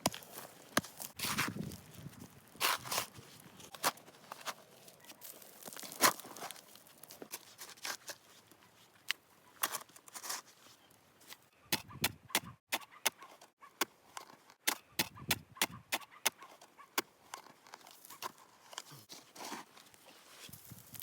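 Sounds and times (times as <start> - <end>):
footsteps crunching in snow: 0.0 - 8.9, 17.8 - 21.0.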